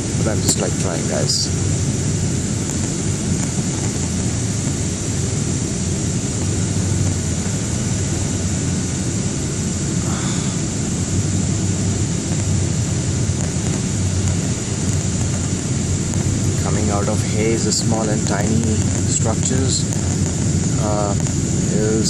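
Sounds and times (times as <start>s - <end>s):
jet engines roaring: 0.0s - 22.0s
rushing air: 0.0s - 22.0s.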